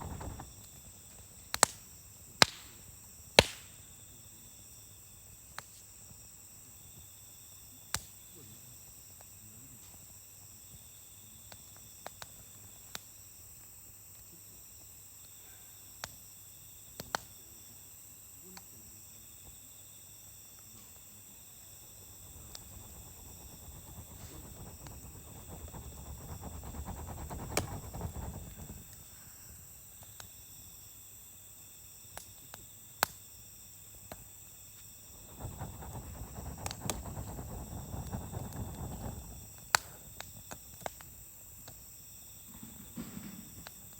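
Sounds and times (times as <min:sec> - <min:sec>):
campfire crackling and popping: 0:00.0 - 0:03.8, 0:21.6 - 0:29.5, 0:35.1 - 0:41.8
insect trilling: 0:20.2 - 0:29.8, 0:34.5 - 0:41.1
rushing noise: 0:21.8 - 0:29.5, 0:35.1 - 0:39.8.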